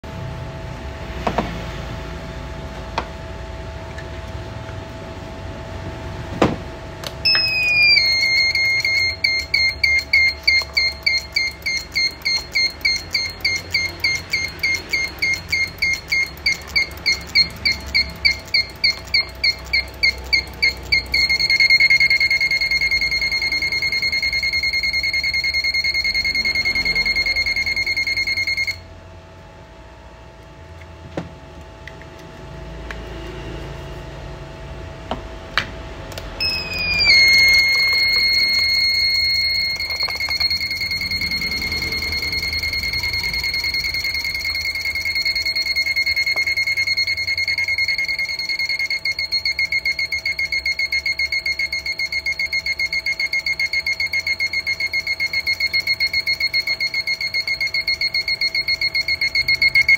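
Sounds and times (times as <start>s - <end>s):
steady low hum: 0.0s - 59.9s
high-pitched electronic buzzer: 7.2s - 28.9s, 36.4s - 59.9s.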